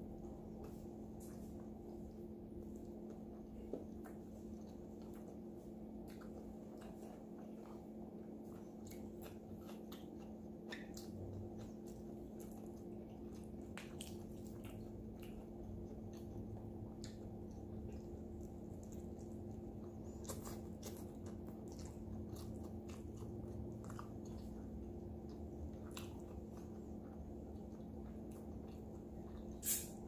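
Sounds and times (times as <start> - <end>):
low hum: 0.0 - 30.0
wet chewing: 0.0 - 30.0
lip smacks: 6.0 - 30.0.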